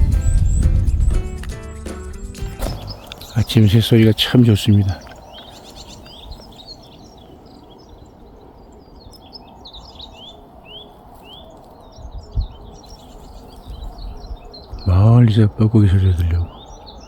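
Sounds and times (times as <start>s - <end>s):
low wind rumble: 0.0s - 1.6s, 2.5s - 17.0s
small birds chirping: 0.0s - 17.0s
soft thump: 2.6s - 3.3s.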